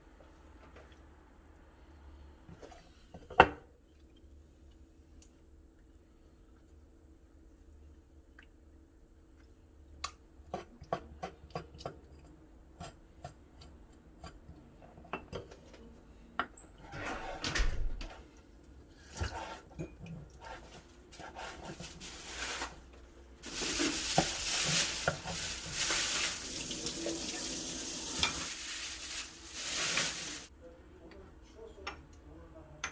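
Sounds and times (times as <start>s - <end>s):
water running from tap: 23.5s - 30.5s.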